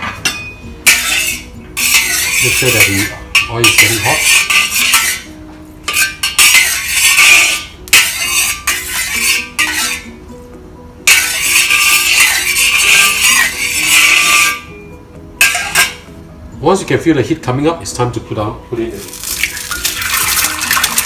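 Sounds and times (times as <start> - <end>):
background music: 0.0 - 21.0
metal ladle scraping wok: 0.8 - 10.2, 11.0 - 14.8, 15.4 - 16.1, 19.0 - 21.0.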